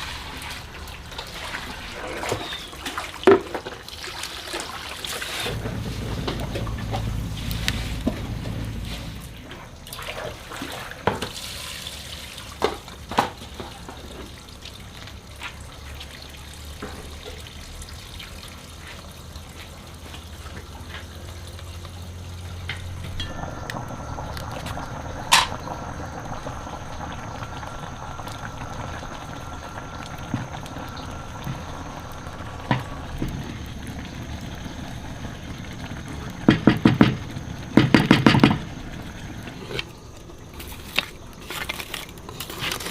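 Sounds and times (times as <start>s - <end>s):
water pouring and trickling: 0.0s - 42.9s
faint steady whine: 5.4s - 10.3s, 20.2s - 42.9s
sharp knocks: 36.4s - 37.2s, 37.8s - 38.6s.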